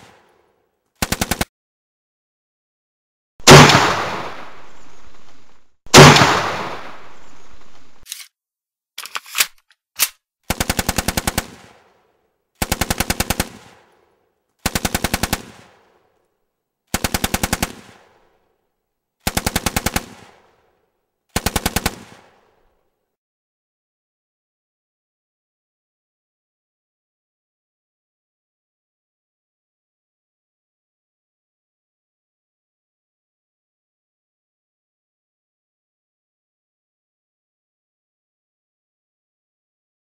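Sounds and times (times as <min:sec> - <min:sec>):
machine-gun fire bursts: 0:01.0 - 0:01.5, 0:03.4 - 0:04.4, 0:05.9 - 0:07.0, 0:10.5 - 0:11.8, 0:12.6 - 0:13.8, 0:14.6 - 0:15.8, 0:16.9 - 0:18.1, 0:19.2 - 0:20.4, 0:21.4 - 0:22.3
heavy gunshots echoing: 0:03.4 - 0:04.8, 0:05.9 - 0:07.5
sharp gun clicks: 0:09.0 - 0:10.6.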